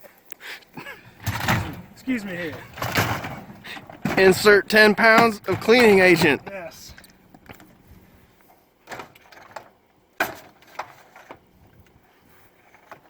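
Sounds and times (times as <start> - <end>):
dishwasher door and racks clattering: 1.0 - 7.7.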